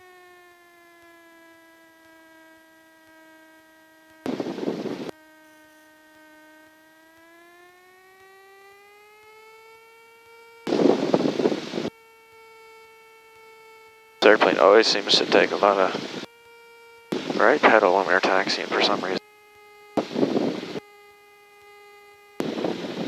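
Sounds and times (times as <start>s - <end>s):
plane engine droning through headset: 0.0s - 23.0s
harsh rushing noise bursts: 17.2s - 19.2s.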